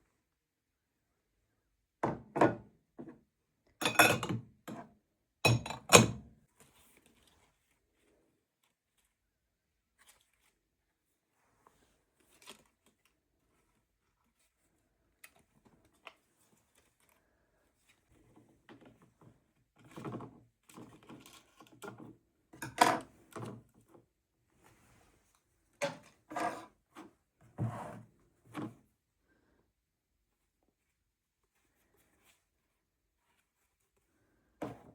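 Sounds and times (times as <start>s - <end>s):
objects knocking and thudding: 2.0s - 3.2s.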